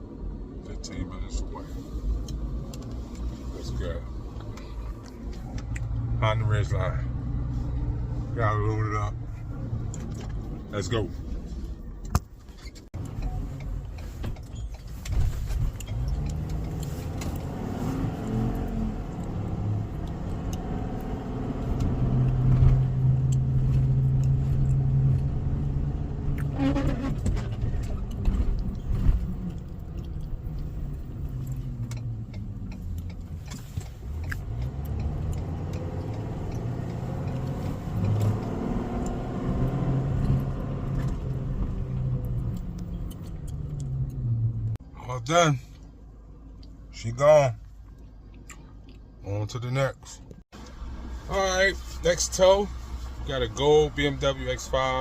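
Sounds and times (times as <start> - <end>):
truck engine revving: 15.6 - 44.8.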